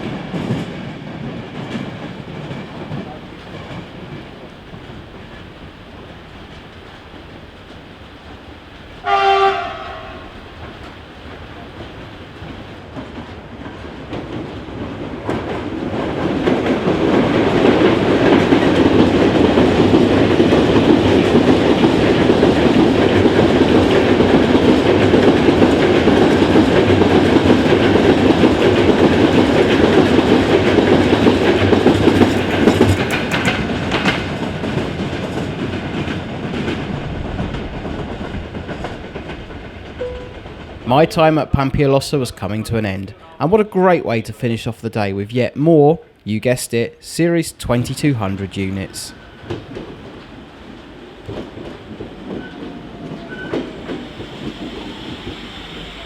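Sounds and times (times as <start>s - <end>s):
wheels clacking over rail joints: 0.0s - 41.4s, 49.3s - 56.0s
train rumbling past: 0.0s - 56.0s
train horn blast: 9.0s - 10.6s.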